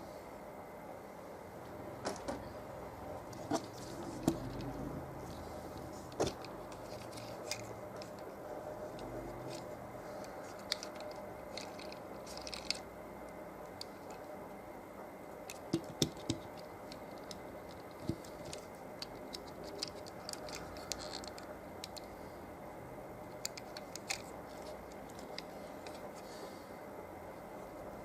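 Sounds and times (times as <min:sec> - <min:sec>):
faint steady hum: 0:00.0 - 0:28.0
toy packaging clicks and taps: 0:15.5 - 0:22.0.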